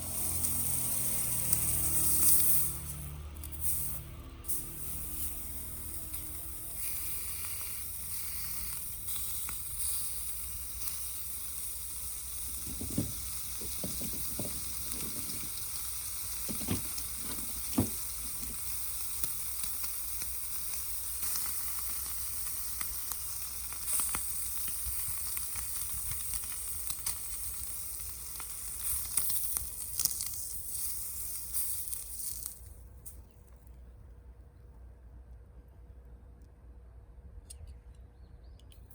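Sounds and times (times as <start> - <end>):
food sizzling in a frying pan: 0.0 - 32.6
crackles: 0.0 - 34.2
soft knocks: 12.6 - 15.4.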